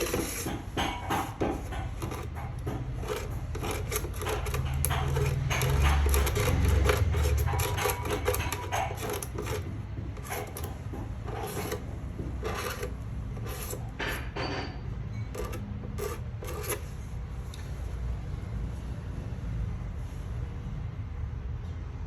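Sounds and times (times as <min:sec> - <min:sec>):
scraping strokes: 0:00.0 - 0:14.4, 0:15.3 - 0:17.0.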